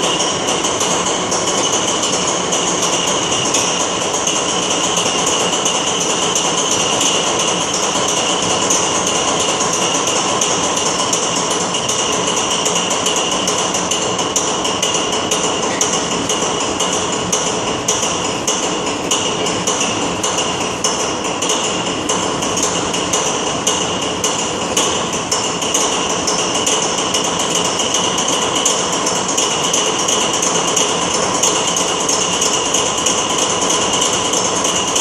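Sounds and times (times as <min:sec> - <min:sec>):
locomotive diesel engine knocking: 0:00.0 - 0:35.0.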